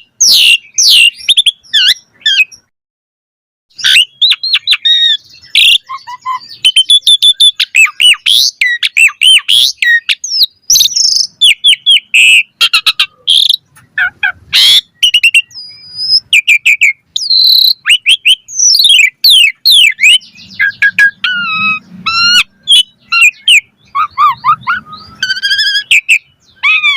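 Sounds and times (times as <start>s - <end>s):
starling singing: 0.0s - 2.7s, 3.7s - 26.9s.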